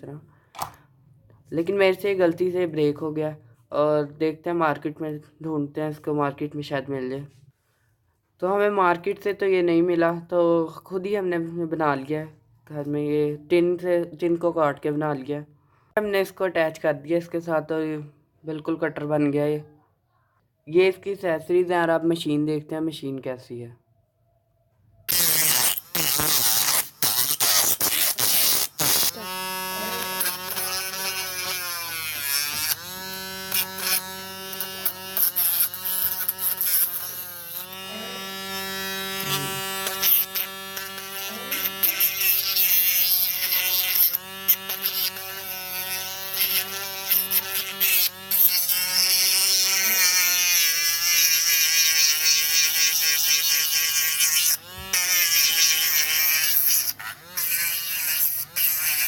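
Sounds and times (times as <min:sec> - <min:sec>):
mini drill motor whining: 0:28.8 - 0:59.0.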